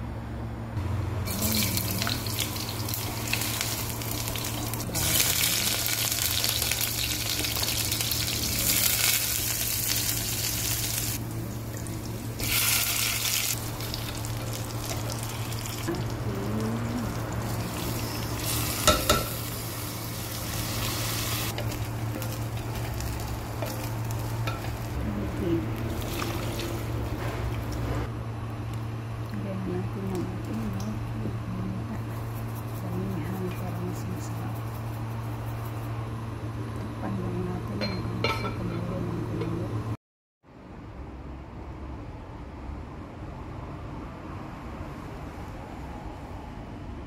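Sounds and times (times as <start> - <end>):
steady low hum: 0.0 - 40.0
food sizzling in hot oil: 1.3 - 25.0, 25.8 - 27.0.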